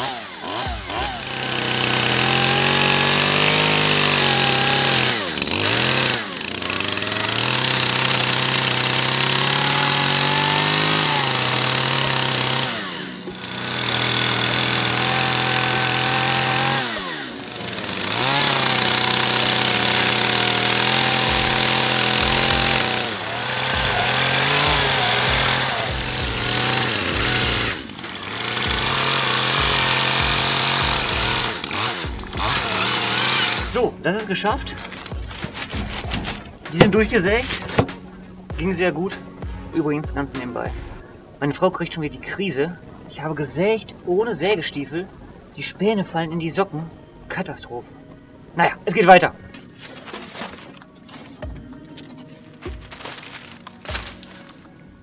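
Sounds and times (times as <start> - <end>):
chainsaw cutting wood: 0.0 - 38.5, 52.6 - 54.6.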